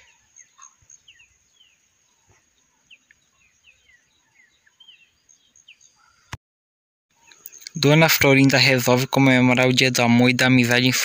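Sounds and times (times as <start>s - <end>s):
faint birds chirping: 0.0s - 6.4s, 7.1s - 11.0s.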